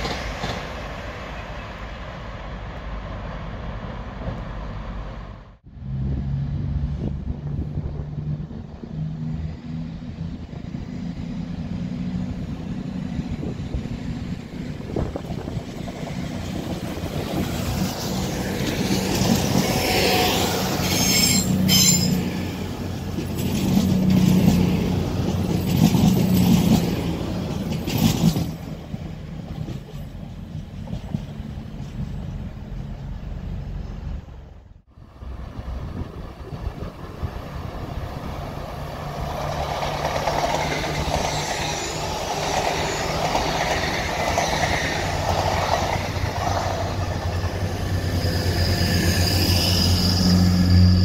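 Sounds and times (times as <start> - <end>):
diesel train engines passing: 0.0 - 51.0
high wheel squeal: 19.8 - 22.4, 40.5 - 46.0, 47.3 - 51.0.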